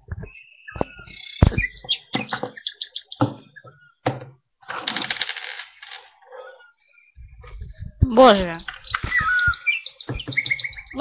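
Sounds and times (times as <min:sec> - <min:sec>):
plastic toys clicking and knocking: 0:04.1 - 0:06.1.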